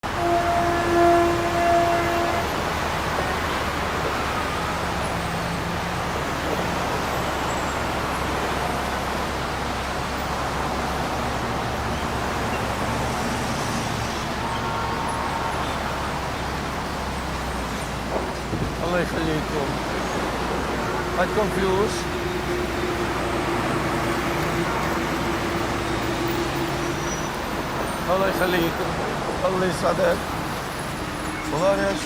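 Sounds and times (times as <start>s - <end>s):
horn-like tone: 0.0s - 3.3s, 20.8s - 28.7s
street traffic noise: 0.0s - 32.0s.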